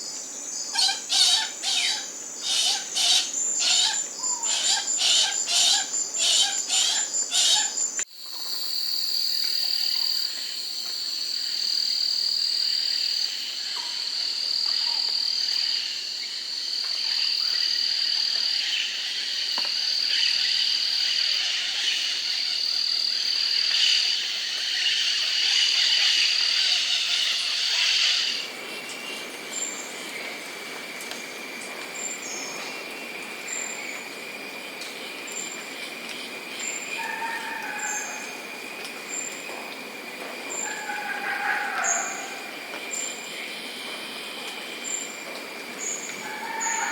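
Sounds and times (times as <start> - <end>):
steady high insect whine: 0.0 - 46.9
high-pitched pulsing insect trills: 0.6 - 13.8.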